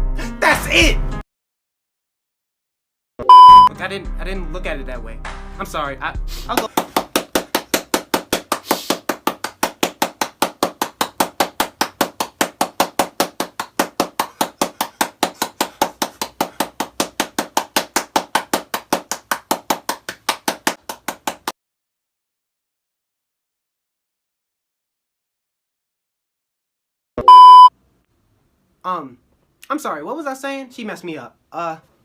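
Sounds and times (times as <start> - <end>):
fast sharp knocks: 6.7 - 21.5.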